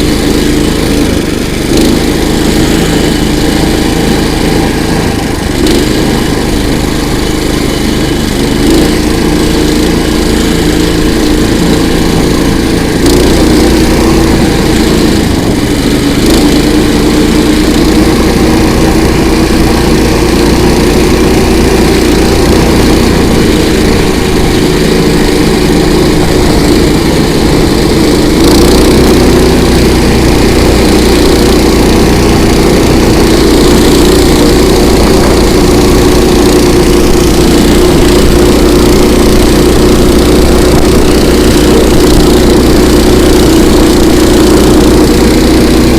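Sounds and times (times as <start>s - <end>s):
small petrol engine running: 0.0s - 45.9s.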